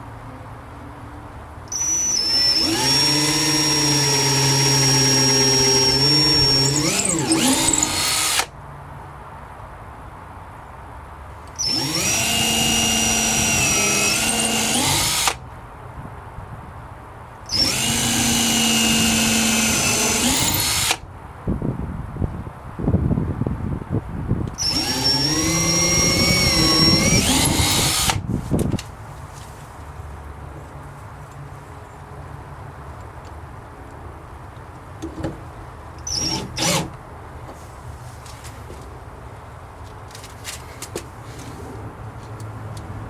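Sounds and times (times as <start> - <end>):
power drill whining into wood: 1.7 - 8.5, 11.6 - 15.4, 17.5 - 21.0, 24.5 - 28.2, 36.1 - 37.0.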